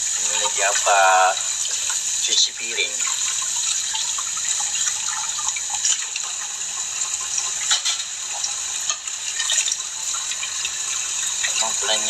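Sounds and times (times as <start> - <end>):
tap water running into sink: 0.0 - 12.0
dishes clinking: 7.6 - 8.2.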